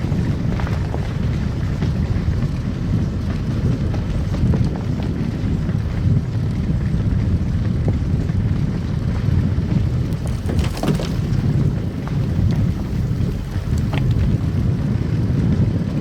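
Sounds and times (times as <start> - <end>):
car tyres and engine rumbling: 0.0 - 16.0
crackling clicks: 10.0 - 14.8.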